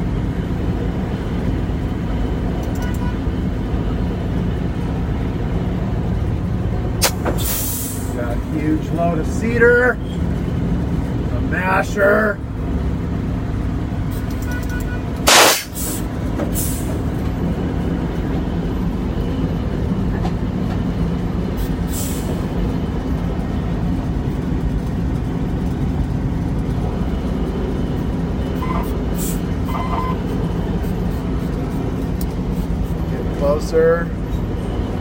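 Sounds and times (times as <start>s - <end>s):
truck diesel engine running: 0.0s - 35.0s
air hiss: 15.3s - 16.9s.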